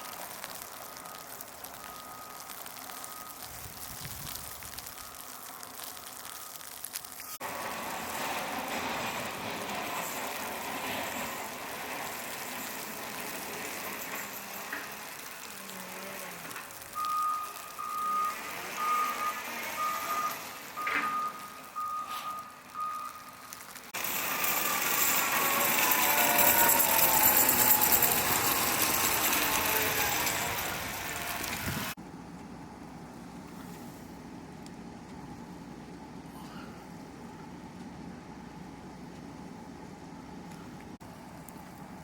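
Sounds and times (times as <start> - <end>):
vehicle reversing alarm beeping: 0.0 - 6.7, 9.2 - 31.9
outdoor noise: 0.0 - 42.0.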